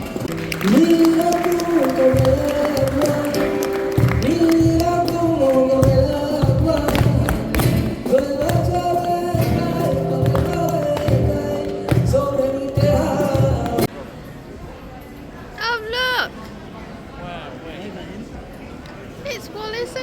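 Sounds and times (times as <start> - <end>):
steady beat: 0.0 - 13.9
sliding melody notes: 0.2 - 13.9.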